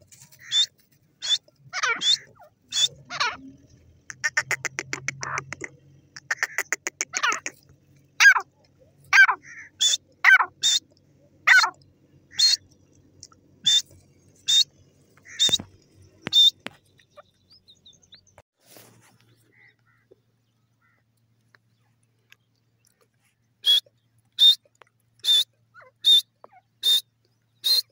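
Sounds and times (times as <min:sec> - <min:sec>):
francolin calling: 0:00.3 - 0:07.6, 0:08.2 - 0:10.9, 0:11.5 - 0:18.3, 0:23.6 - 0:27.9.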